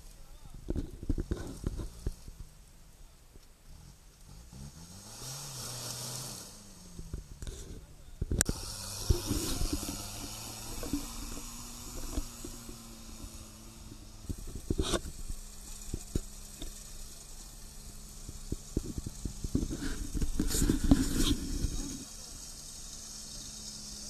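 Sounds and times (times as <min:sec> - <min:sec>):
off-road engine revving: 0:03.6 - 0:24.0.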